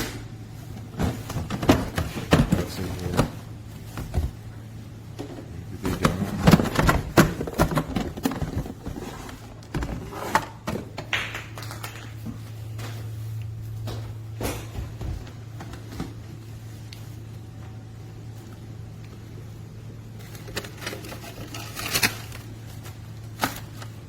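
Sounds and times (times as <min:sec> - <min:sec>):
steady low hum: 0:00.0 - 0:24.0
package being unpacked: 0:20.2 - 0:24.0.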